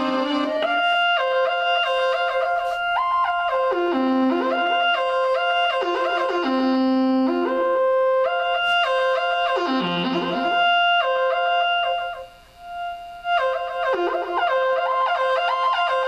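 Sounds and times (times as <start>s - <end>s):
theremin melody: 0.0s - 16.0s.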